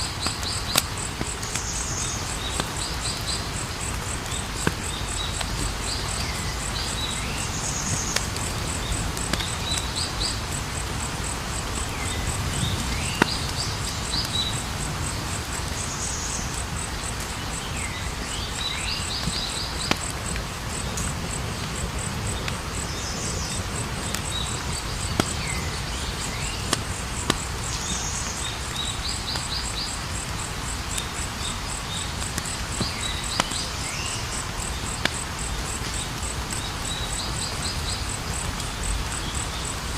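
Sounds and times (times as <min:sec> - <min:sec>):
campfire crackling and popping: 0:00.0 - 0:39.8
cricket trill: 0:00.0 - 0:39.9.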